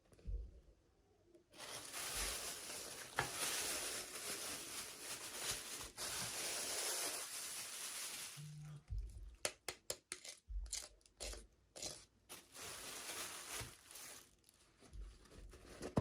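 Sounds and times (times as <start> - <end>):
packaging rustling and tearing: 1.6 - 8.7, 12.3 - 16.0.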